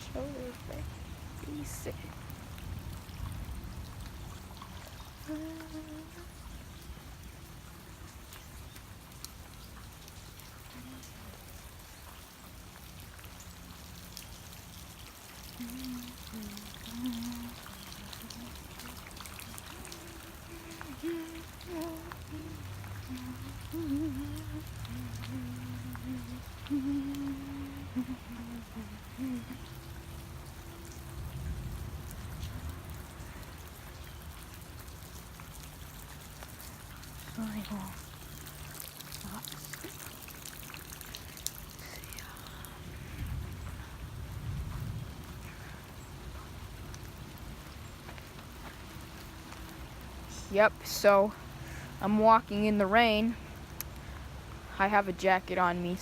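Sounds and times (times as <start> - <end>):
light rain pattering: 0.0 - 56.0
faint low hum: 15.6 - 34.2.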